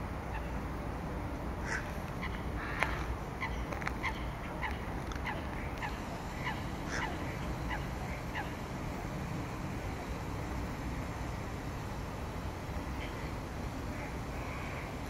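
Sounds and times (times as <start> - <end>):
low background noise: 0.0 - 15.0
bird calling: 1.6 - 10.2, 12.8 - 15.0.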